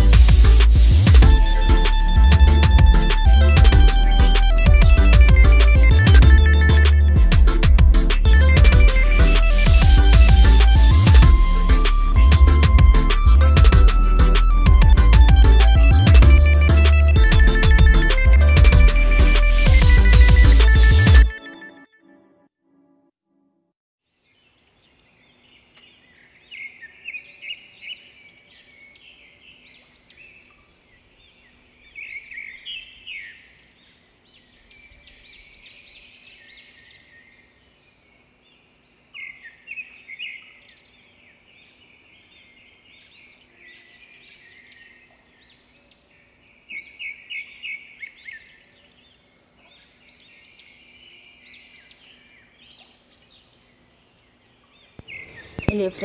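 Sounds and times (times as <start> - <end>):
small birds chirping: 24.2 - 56.0.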